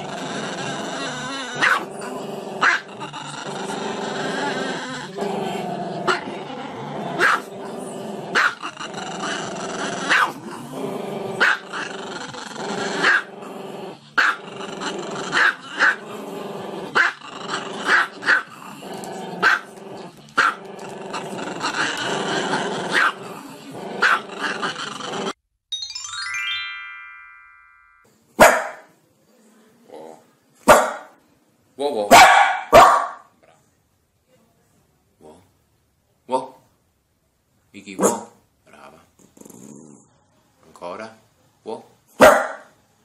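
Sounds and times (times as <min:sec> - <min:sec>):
dog growling: 0:00.0 - 0:25.4, 0:38.7 - 0:40.2
dog barking sharply: 0:28.4 - 0:28.9, 0:30.7 - 0:31.1, 0:32.1 - 0:33.3, 0:38.0 - 0:38.4, 0:42.2 - 0:42.7.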